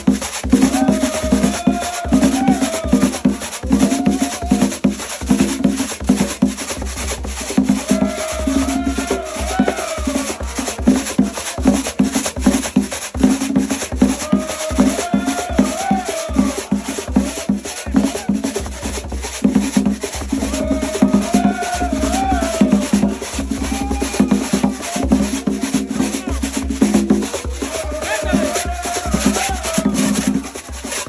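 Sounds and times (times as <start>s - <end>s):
drums playing steady rhythm: 0.0s - 31.0s
high rattling percussion: 0.0s - 31.0s
person singing: 0.6s - 4.7s, 7.8s - 11.9s, 14.2s - 18.3s, 20.4s - 26.4s, 27.5s - 30.4s.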